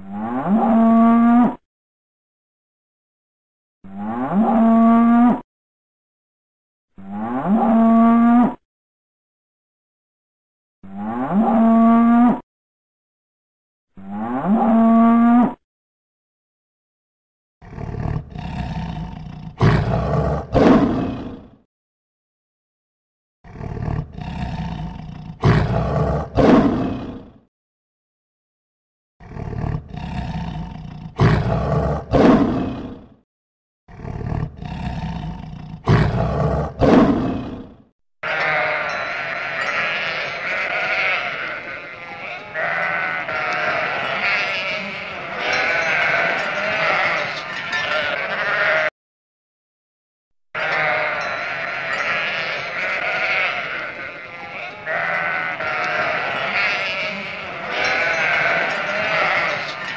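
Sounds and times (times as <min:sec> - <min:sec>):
lion roaring and growling: 0:17.6 - 0:21.6, 0:23.5 - 0:27.4, 0:29.2 - 0:33.2, 0:33.9 - 0:37.9
sheep bleating: 0:38.2 - 0:48.9, 0:50.6 - 0:59.9.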